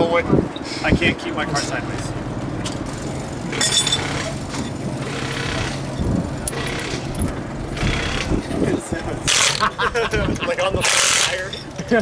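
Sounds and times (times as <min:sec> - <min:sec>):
impact wrench running: 0:03.0 - 0:08.5, 0:09.2 - 0:09.7, 0:10.8 - 0:11.6
metal tools clinking: 0:03.5 - 0:07.4, 0:10.8 - 0:11.9.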